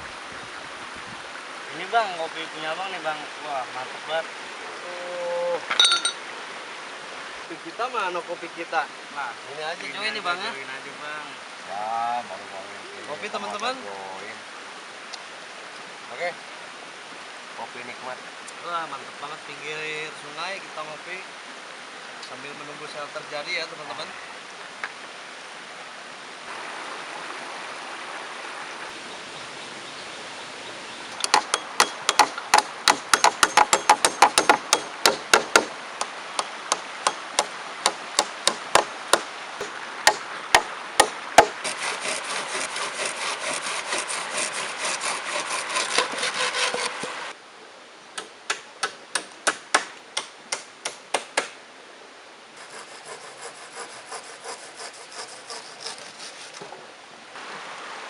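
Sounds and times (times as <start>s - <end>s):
river water rushing: 0.0s - 58.0s
tool knocking on wood: 31.2s - 35.7s, 36.7s - 41.6s
rasping sound: 40.1s - 47.3s, 52.6s - 56.7s.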